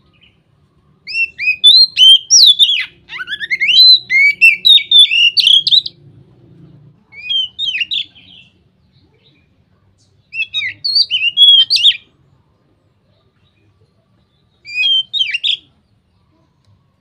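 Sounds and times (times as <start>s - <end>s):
bird singing whistled phrases: 1.0s - 6.0s, 7.2s - 8.6s, 10.3s - 12.1s, 14.6s - 15.8s.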